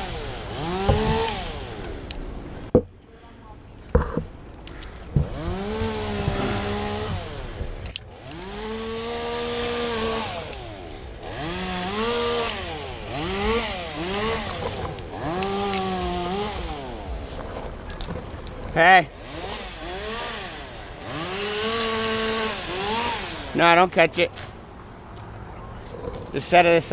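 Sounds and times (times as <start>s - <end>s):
chainsaw revving cutting wood: 0.0s - 2.8s, 5.1s - 23.8s.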